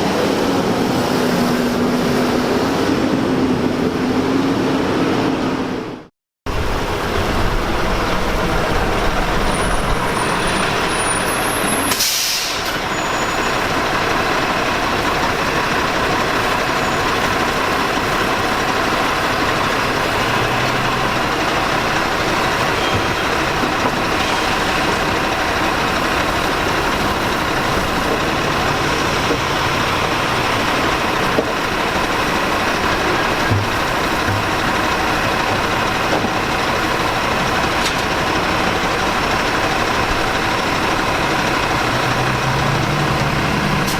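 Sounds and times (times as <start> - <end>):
garbage truck running: 0.0 - 43.9
air-brake hiss: 11.6 - 12.8.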